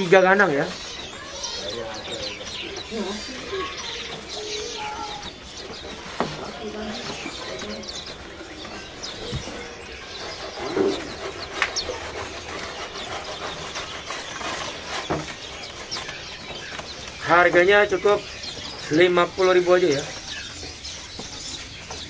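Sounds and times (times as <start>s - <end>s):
caged songbirds chirping: 0.0s - 22.0s.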